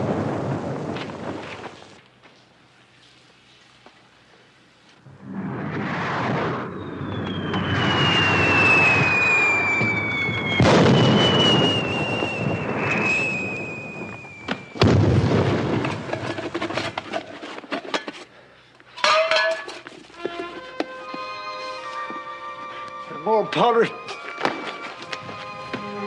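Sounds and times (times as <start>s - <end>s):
crackling firework pops: 0.0s - 3.2s, 4.9s - 17.1s
loud firework bang: 5.2s - 16.2s
falling rocket whistle: 5.3s - 15.2s.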